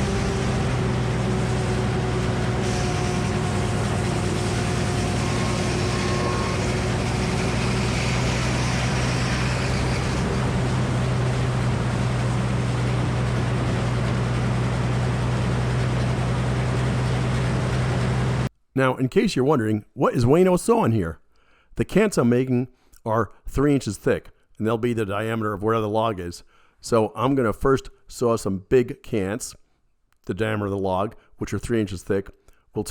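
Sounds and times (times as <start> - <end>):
saw blade hissing through log: 0.0 - 10.4
circular sawmill humming: 0.0 - 18.5.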